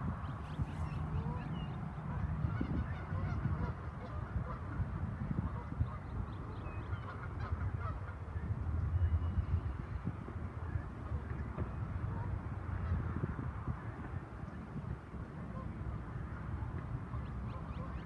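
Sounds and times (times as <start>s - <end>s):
steady low rumble: 0.0s - 18.0s
geese honking: 1.1s - 4.8s, 6.8s - 8.2s.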